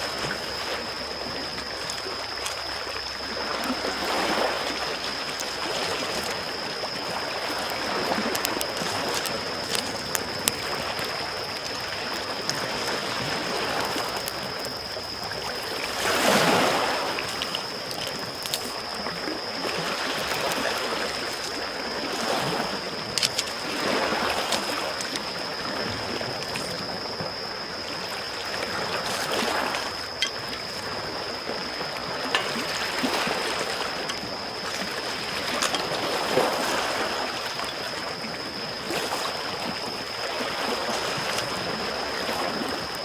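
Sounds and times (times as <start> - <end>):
faint high whine: 0.0 - 43.0
waves lapping on shore: 0.0 - 43.0
campfire crackling: 0.1 - 26.9, 32.3 - 37.9.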